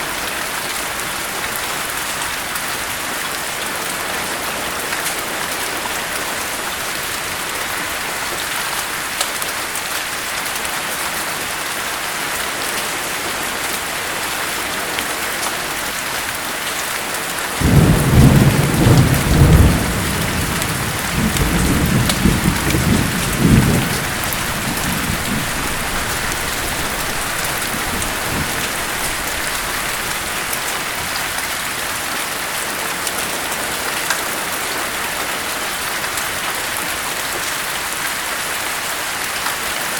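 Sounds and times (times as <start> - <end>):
heavy rain falling: 0.0 - 39.9
thunder rumbling: 17.5 - 31.3.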